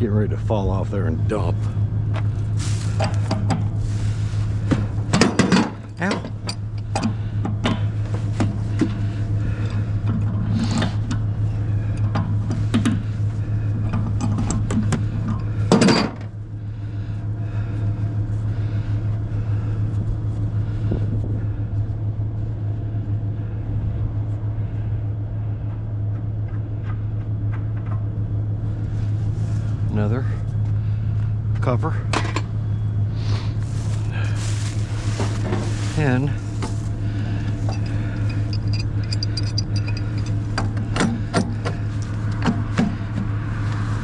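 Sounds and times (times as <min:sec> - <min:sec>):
steady low hum: 0:00.0 - 0:44.0
scrap metal clinking and clanking: 0:02.3 - 0:09.0, 0:13.8 - 0:16.3, 0:33.8 - 0:42.7.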